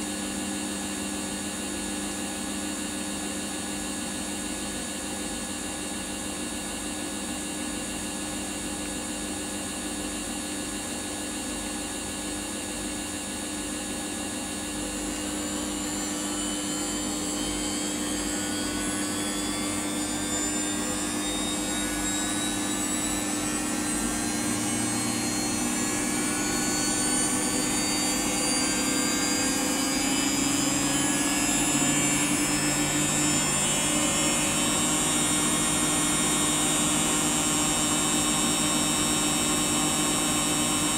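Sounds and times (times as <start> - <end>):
washing machine motor whining: 9.6 - 40.9
steady low hum: 11.8 - 40.9.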